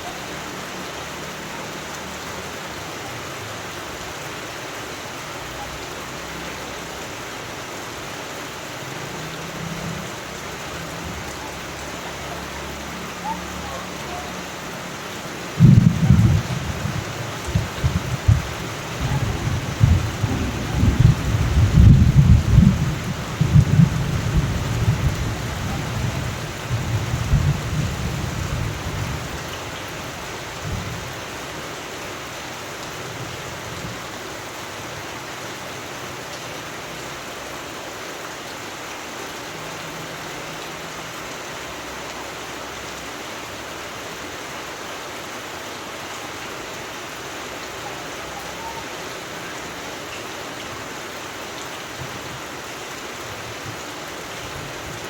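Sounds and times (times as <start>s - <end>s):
steady rain falling: 0.0s - 55.0s
thunder rumbling: 15.6s - 29.4s.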